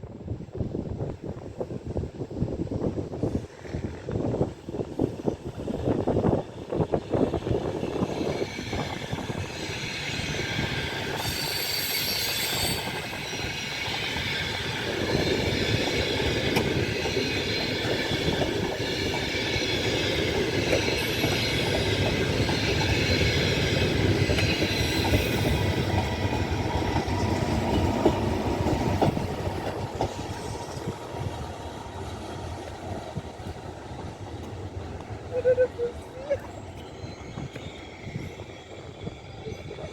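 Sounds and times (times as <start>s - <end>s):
wheels squealing on rail: 3.3s - 31.2s, 34.9s - 39.9s
train wheels clattering: 7.6s - 35.2s.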